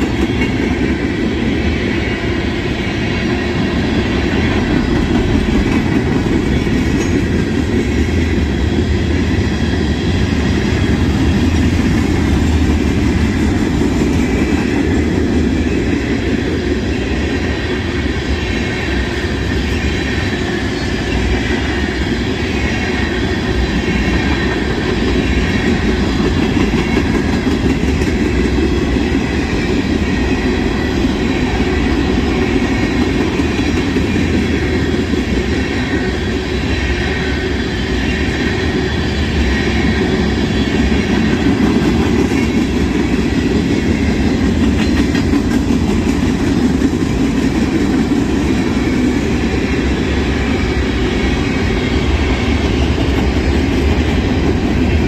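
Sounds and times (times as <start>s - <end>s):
train cars clattering: 0.0s - 55.0s
train wheels rolling on rails: 0.0s - 55.0s.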